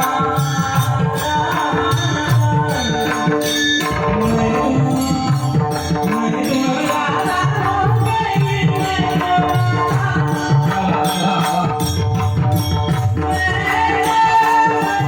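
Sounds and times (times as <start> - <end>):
tabla drumming: 0.0 - 15.0
steady held notes: 2.7 - 7.6.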